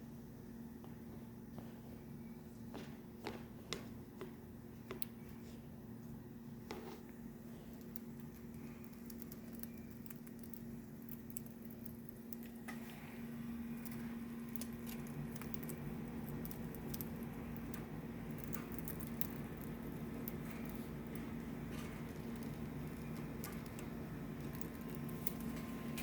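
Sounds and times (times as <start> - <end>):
budgies clicking and scratching: 7.6 - 12.6, 13.7 - 26.0.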